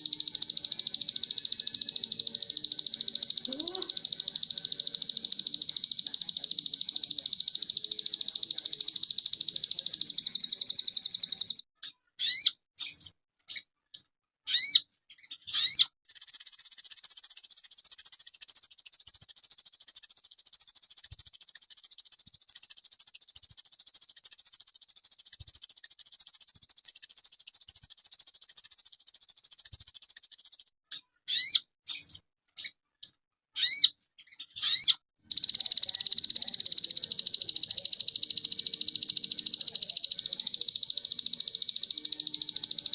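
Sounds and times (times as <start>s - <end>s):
bird singing fast trills: 0.0s - 11.6s, 15.5s - 30.7s, 34.6s - 42.9s
bird chirps sweeping down: 15.6s - 30.7s, 34.6s - 42.9s.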